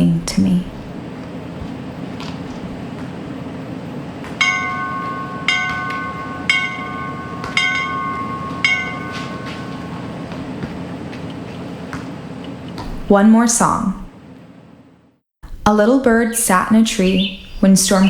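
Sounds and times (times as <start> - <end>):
bell ringing: 4.4 - 11.5.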